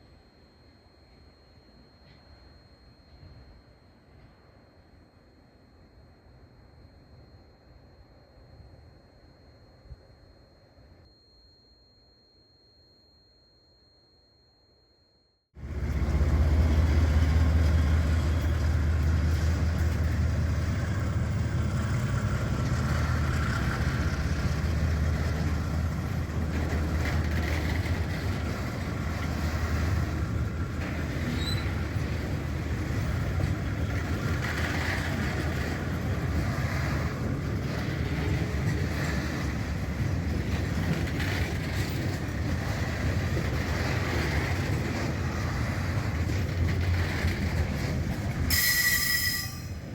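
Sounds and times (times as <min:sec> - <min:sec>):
diesel locomotive engine rumble: 0:15.6 - 0:49.9.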